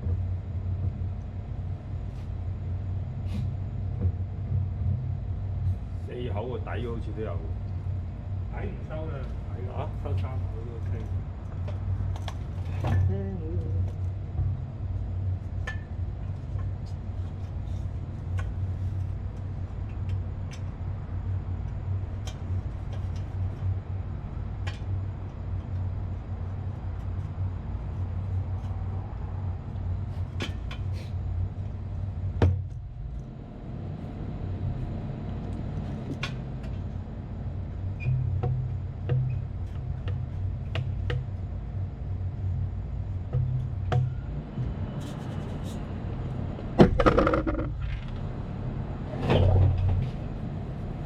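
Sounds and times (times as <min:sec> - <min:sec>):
air conditioning machinery hum: 0:00.0 - 0:51.0
loud knock: 0:46.8 - 0:47.7.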